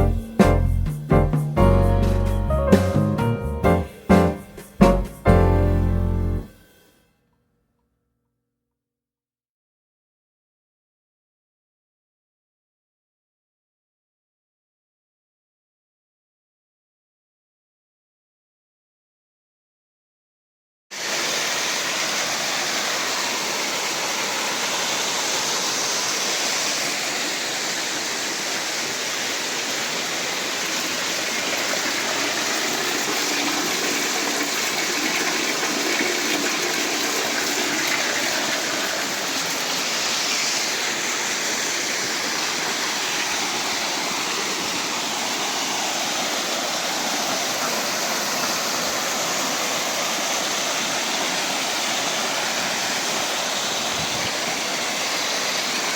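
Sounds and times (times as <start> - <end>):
flowing water rushing: 21.0 - 55.9.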